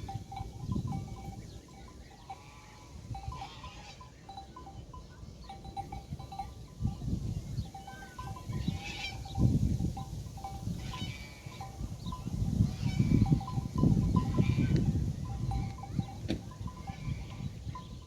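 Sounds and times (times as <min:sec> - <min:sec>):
livestock bells clinking: 0:00.0 - 0:18.0
animals bleating: 0:15.5 - 0:17.9.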